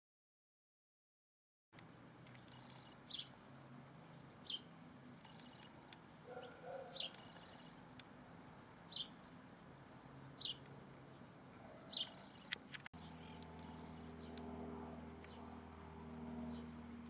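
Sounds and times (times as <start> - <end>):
lower bird call: 4.2 - 8.0, 10.4 - 14.4
bird high falling chirp: 4.3 - 8.0.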